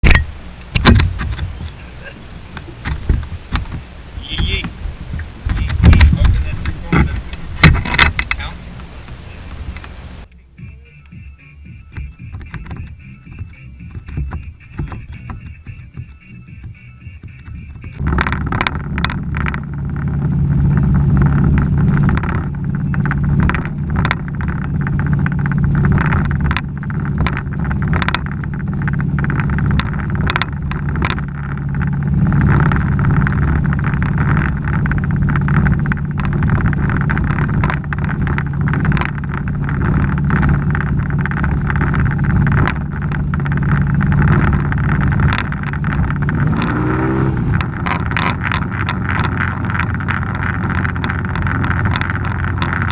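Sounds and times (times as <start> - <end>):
outboard motor droning: 0.0 - 52.9
short knocks: 11.9 - 31.9.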